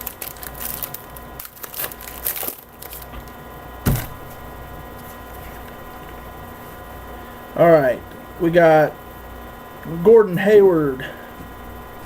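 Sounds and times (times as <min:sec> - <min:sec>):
cards being handled: 0:00.0 - 0:04.4
foil wrapper crinkling: 0:00.0 - 0:04.4
electrical hum: 0:00.0 - 0:12.0
dull thud: 0:03.8 - 0:04.4.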